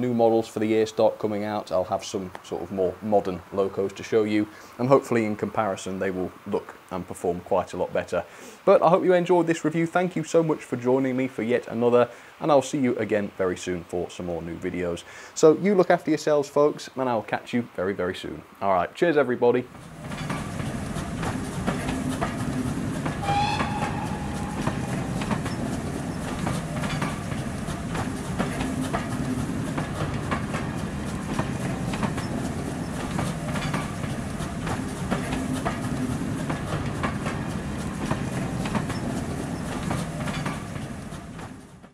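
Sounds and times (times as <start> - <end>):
train carriages rumbling past: 19.7 - 41.9
wheels clicking over rail joints: 19.7 - 41.9
brief high tone: 23.2 - 26.3.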